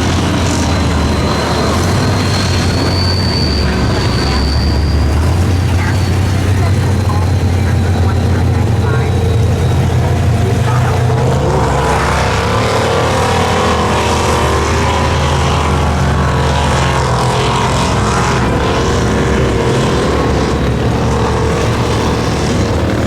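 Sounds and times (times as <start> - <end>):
truck engine running: 0.0 - 23.0.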